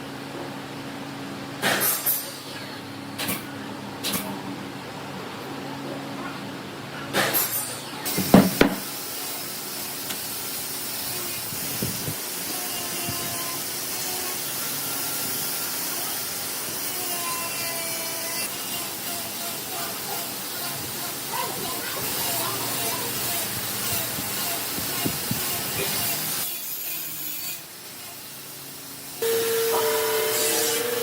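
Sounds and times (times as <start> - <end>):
sharp knocks: 8.2 - 8.9
rasping strokes on wood: 16.9 - 27.5.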